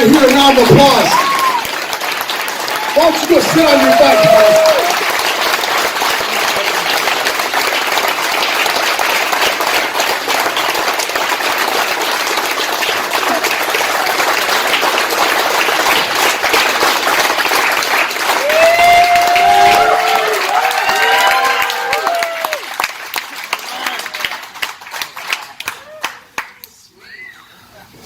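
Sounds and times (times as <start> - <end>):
crowd applauding: 0.0 - 26.6.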